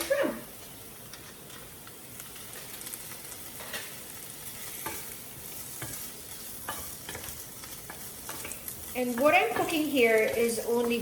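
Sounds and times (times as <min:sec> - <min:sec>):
food sizzling in a pan: 0:00.0 - 0:11.0
utensil scraping a pan: 0:03.5 - 0:10.4.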